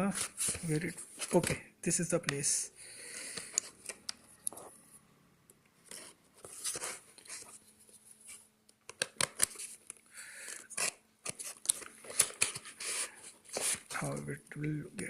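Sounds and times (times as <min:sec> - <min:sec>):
package clicks: 0:08.9 - 0:10.0, 0:10.8 - 0:12.7
package scraping and rustling: 0:10.6 - 0:14.0.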